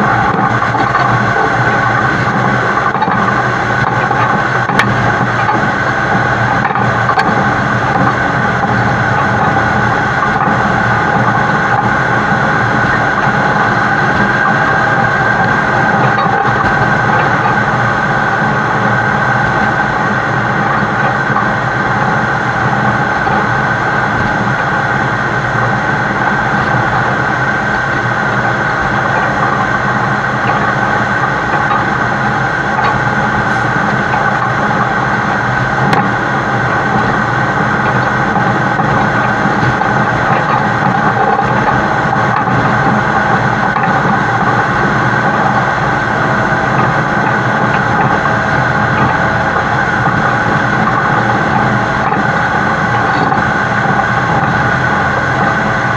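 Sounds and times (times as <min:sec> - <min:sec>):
diesel truck engine under load: 0:00.0 - 0:55.9
road and wind noise: 0:00.0 - 0:55.9.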